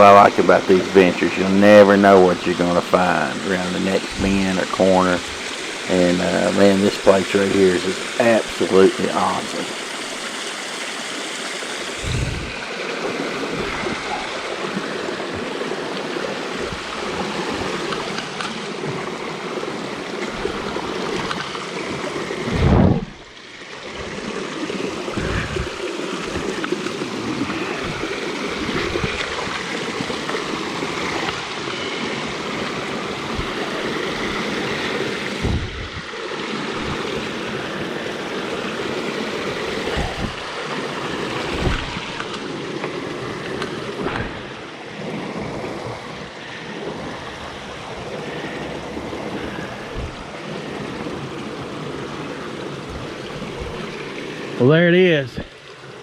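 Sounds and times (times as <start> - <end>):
water rushing and splashing: 0.0 - 56.0
low bumps: 12.0 - 12.6, 22.4 - 24.2, 25.1 - 26.7, 35.4 - 36.1, 39.8 - 40.6, 41.5 - 42.3, 49.3 - 50.4.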